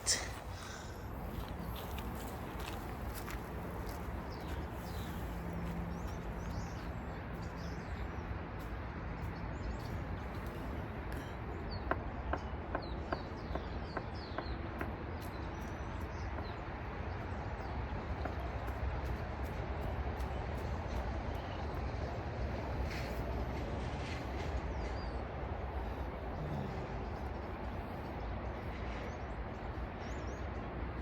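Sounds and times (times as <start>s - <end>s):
small birds chirping: 0.0s - 22.0s
steady outdoor background hum: 0.0s - 31.0s.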